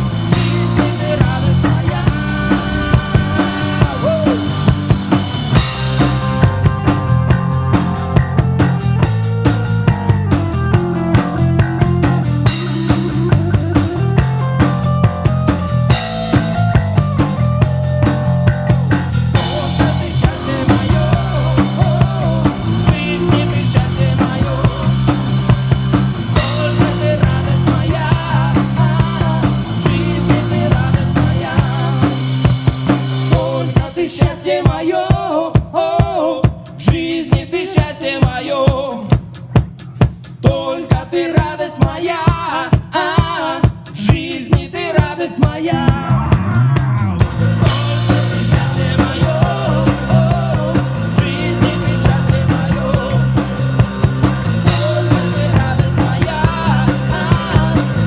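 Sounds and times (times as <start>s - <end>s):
rock band playing: 0.0s - 34.0s, 45.9s - 58.0s
drum kit beat: 0.0s - 58.0s.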